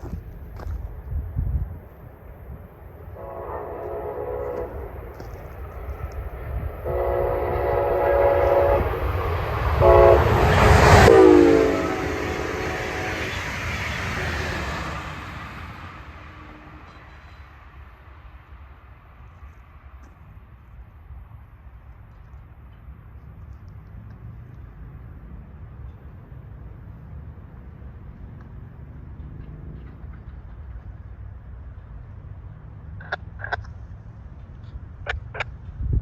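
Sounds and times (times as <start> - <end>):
train rushing past: 0.0 - 36.0
locomotive air horn blasts: 3.1 - 5.8, 6.6 - 14.4.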